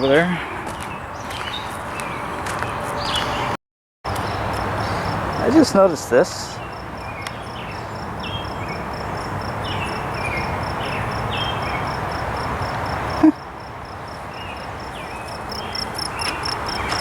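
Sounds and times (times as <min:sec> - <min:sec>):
insect trilling: 0:14.4 - 0:17.0.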